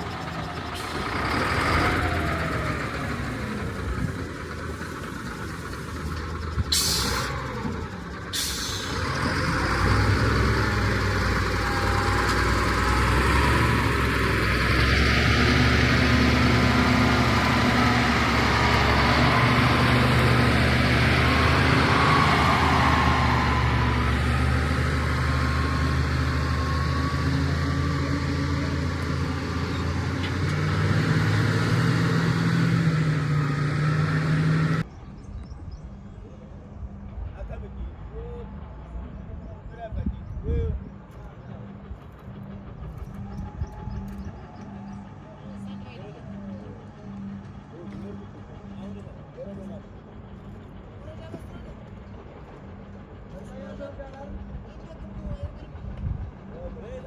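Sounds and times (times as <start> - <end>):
heavy truck engine running: 0.0 - 57.0.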